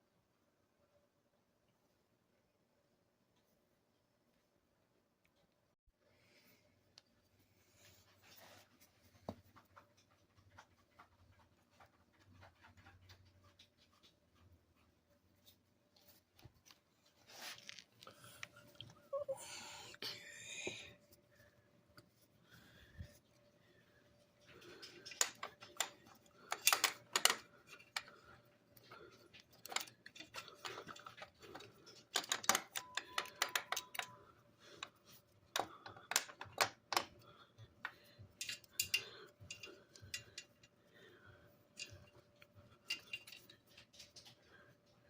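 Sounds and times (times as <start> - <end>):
hand tools clicking and rattling: 24.4 - 41.1, 41.7 - 44.9.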